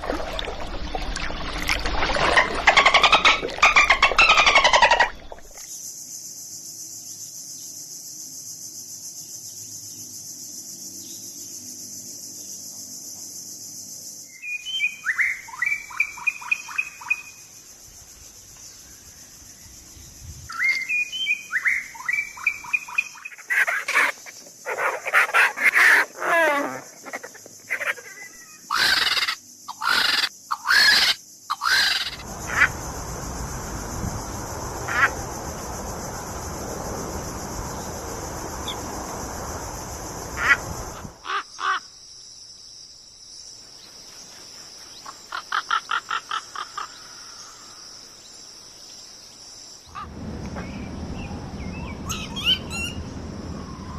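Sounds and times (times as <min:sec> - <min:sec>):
steady high hiss: 0:31.2 - 0:45.3, 0:47.3 - 0:53.9.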